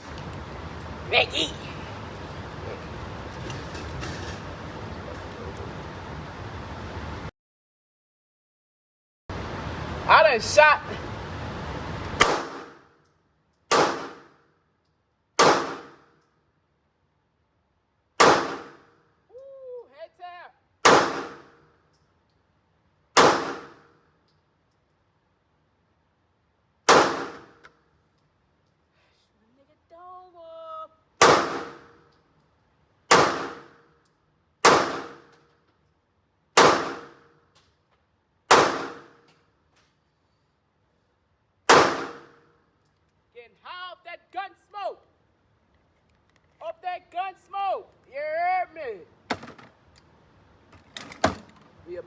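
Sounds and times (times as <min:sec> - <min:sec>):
pistol shots echoing: 0:12.2 - 0:12.8, 0:13.7 - 0:14.3, 0:15.4 - 0:16.0, 0:18.2 - 0:18.8, 0:20.8 - 0:21.5, 0:23.2 - 0:23.9, 0:26.9 - 0:27.6, 0:31.2 - 0:31.9, 0:33.1 - 0:33.8, 0:34.6 - 0:35.3, 0:36.6 - 0:37.3, 0:38.5 - 0:39.2, 0:41.7 - 0:42.4
pistol shots echoing indoors: 0:36.6 - 0:37.3, 0:38.5 - 0:39.3, 0:41.7 - 0:42.5.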